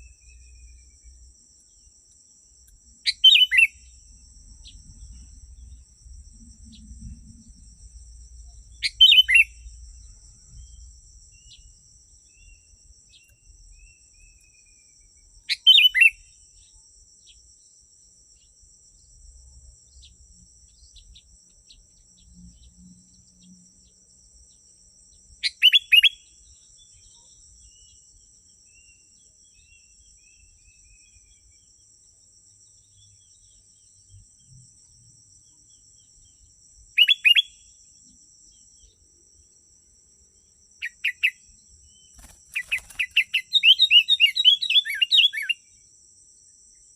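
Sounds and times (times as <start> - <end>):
faint bird chirps: 0.0 - 1.9, 2.6 - 5.8, 6.4 - 7.6, 8.4 - 17.7, 19.9 - 31.9, 35.4 - 39.0, 40.4 - 45.8
bird calling loud phrases: 3.1 - 3.7, 8.8 - 9.5, 25.4 - 26.2, 37.0 - 37.6, 42.6 - 45.6.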